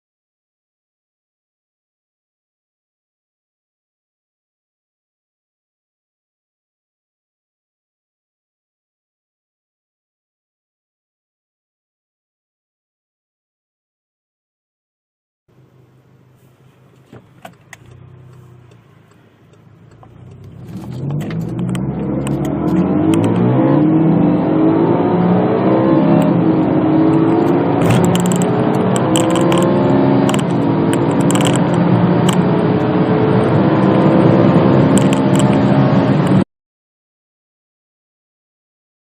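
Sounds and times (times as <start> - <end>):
car engine accelerating hard: 17.0 - 36.4.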